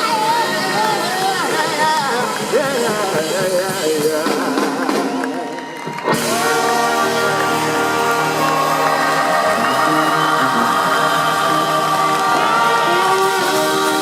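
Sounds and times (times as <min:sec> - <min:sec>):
blues-rock band playing: 0:00.0 - 0:14.0
bending lead guitar line: 0:06.0 - 0:14.0.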